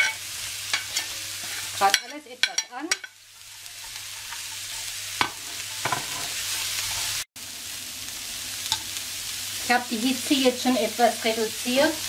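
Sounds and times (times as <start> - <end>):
vegetables sizzling in oil: 0.0 - 12.0
knocks against a wok: 5.2 - 6.2.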